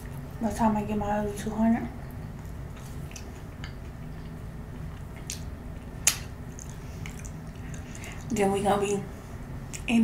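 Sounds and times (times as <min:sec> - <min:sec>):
chewing french fry: 0:02.3 - 0:08.3.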